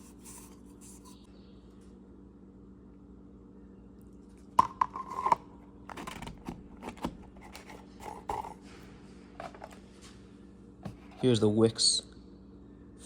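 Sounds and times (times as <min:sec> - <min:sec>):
clicks scrapes and rustles: 0:05.0 - 0:08.8.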